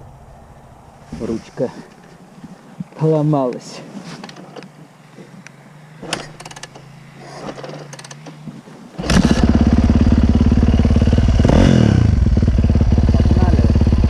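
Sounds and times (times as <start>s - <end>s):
dirt bike engine running: 7.8s - 14.0s.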